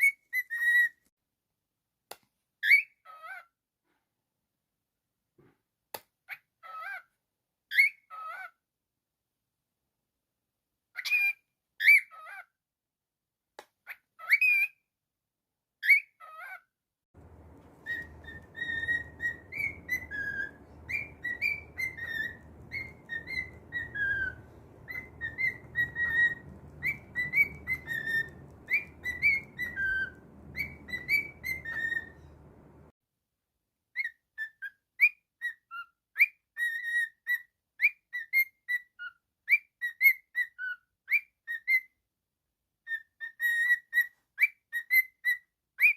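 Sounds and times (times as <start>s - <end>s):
bird whistling a tune: 0.0s - 1.0s, 17.2s - 32.6s, 34.0s - 38.8s
bird chirps: 17.2s - 32.9s
low hum: 17.2s - 32.9s.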